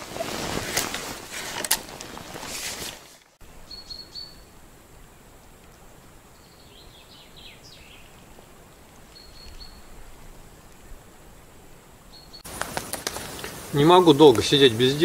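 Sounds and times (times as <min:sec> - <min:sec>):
birds chirping: 0:03.4 - 0:15.0
small birds whistling: 0:03.7 - 0:04.6, 0:09.1 - 0:10.0, 0:12.1 - 0:13.4.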